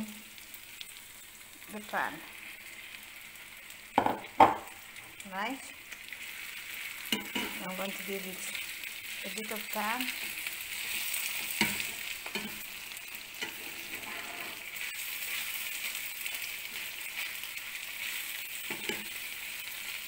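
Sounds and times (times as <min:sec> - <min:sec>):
liver and onions sizzling in pan: 0:00.0 - 0:20.0
utensil knocking against pan: 0:04.0 - 0:04.7.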